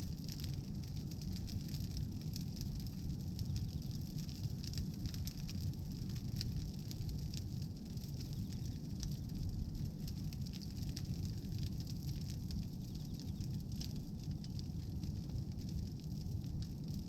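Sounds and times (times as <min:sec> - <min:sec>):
low rumble of flame: 0:00.0 - 0:17.0
wood crackling and popping: 0:00.0 - 0:17.0.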